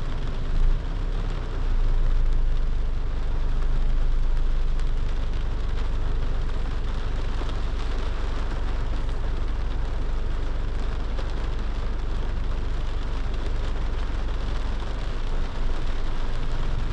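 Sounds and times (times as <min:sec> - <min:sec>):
car driving rumble: 0:00.0 - 0:16.9
rain patter: 0:00.0 - 0:16.9.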